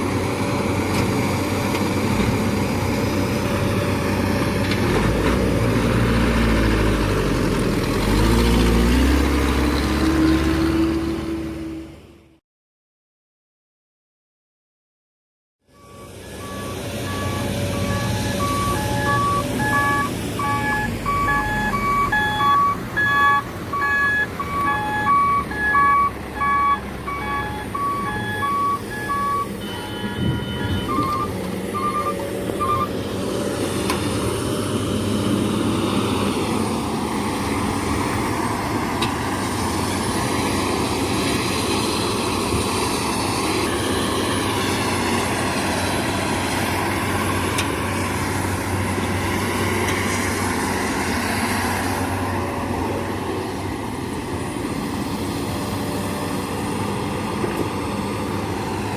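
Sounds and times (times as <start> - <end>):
diesel engine running: 0.0 - 12.2, 15.7 - 58.9
reversing alarm beeping: 15.7 - 32.9.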